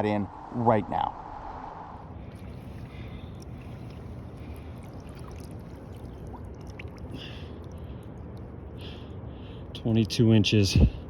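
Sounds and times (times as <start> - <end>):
creek water flowing: 2.2 - 8.7.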